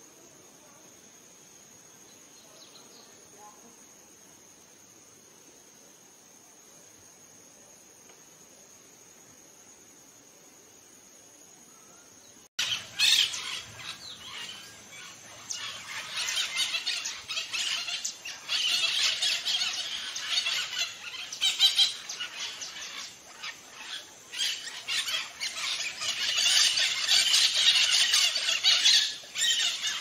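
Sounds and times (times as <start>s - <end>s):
faint hiss: 0.0s - 30.0s
birds squawking: 12.6s - 23.8s, 24.4s - 30.0s.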